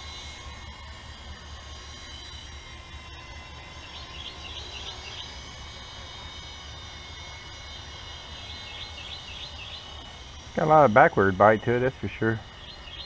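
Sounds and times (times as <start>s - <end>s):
steady low hum: 0.0s - 13.0s
bird chirping: 3.5s - 5.5s, 8.2s - 10.2s, 11.2s - 13.0s.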